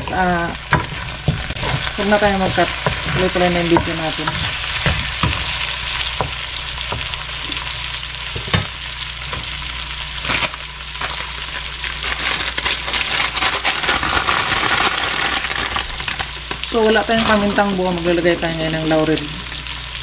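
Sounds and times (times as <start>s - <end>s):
wooden spatula scraping pan: 0.0s - 5.6s
chicken sizzling in hot oil: 0.0s - 20.0s.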